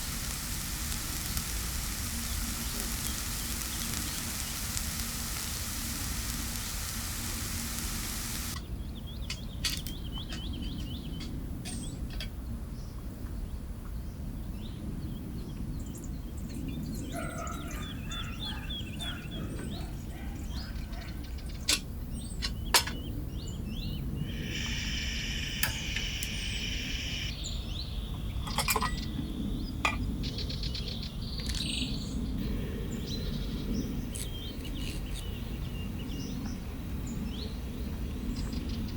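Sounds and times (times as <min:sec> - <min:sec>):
buzzy call: 0:00.0 - 0:08.6
food sizzling in a pan: 0:00.0 - 0:08.6, 0:24.3 - 0:27.3
low outdoor rumble: 0:00.0 - 0:08.6
sharp clicks: 0:00.0 - 0:08.6.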